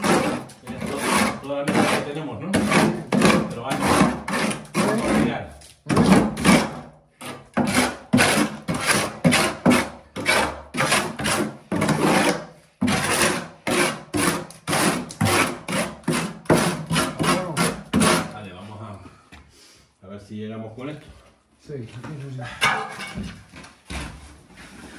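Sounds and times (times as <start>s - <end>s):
hand tool rasping: 0.0s - 18.4s.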